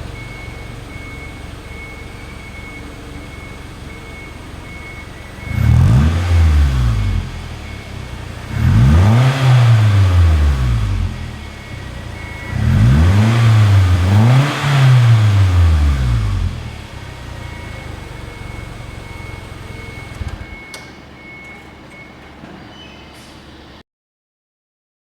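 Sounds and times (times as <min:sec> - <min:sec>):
car engine revving and idling: 0:00.0 - 0:21.5
click: 0:20.1 - 0:21.6.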